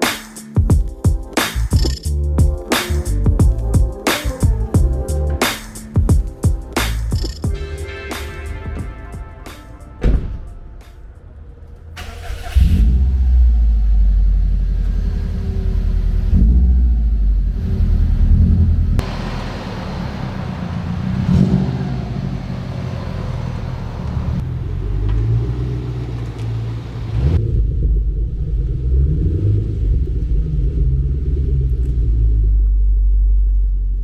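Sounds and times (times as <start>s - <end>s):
car engine starting and revving: 11.3s - 33.5s.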